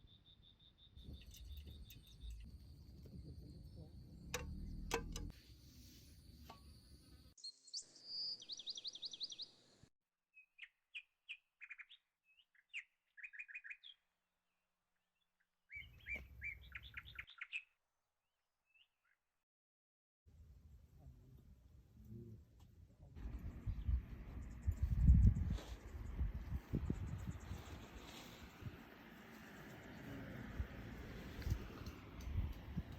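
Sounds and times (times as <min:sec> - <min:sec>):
wild birds chirping: 0:00.0 - 0:02.5, 0:07.4 - 0:09.9, 0:10.5 - 0:14.1, 0:15.2 - 0:17.8, 0:23.2 - 0:32.2.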